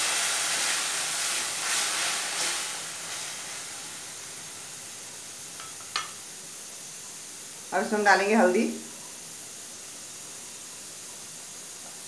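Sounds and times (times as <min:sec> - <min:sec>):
tomato puree sizzling in oil: 0:00.0 - 0:12.0.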